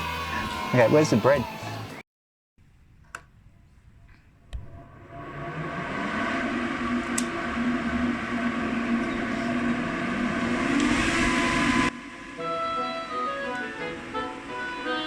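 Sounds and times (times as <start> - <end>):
motor machine humming: 4.5 - 15.0.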